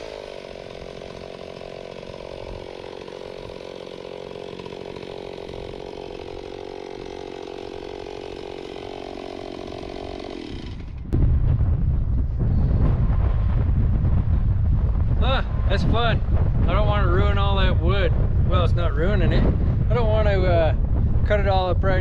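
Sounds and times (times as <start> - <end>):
chainsaw running at high revs: 0.0 - 11.2
low rumbling on microphone: 10.6 - 22.0.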